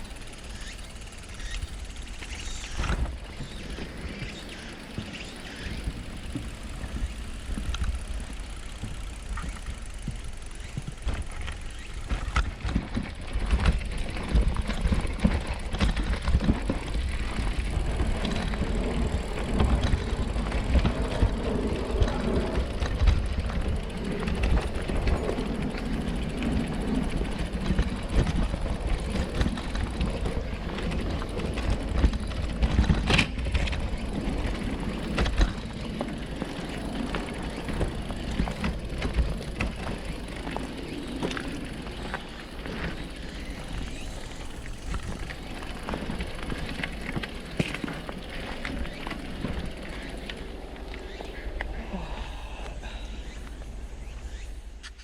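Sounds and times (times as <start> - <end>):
bicycle rumble: 0.0 - 55.0.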